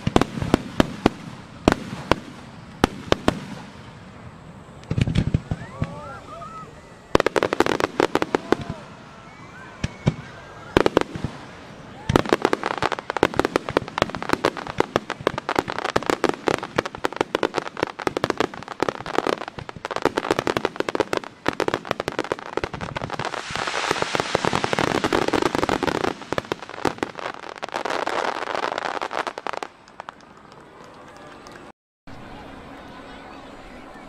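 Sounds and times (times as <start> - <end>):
fireworks bangs: 0.0 - 31.7
fireworks crackling: 0.0 - 34.0.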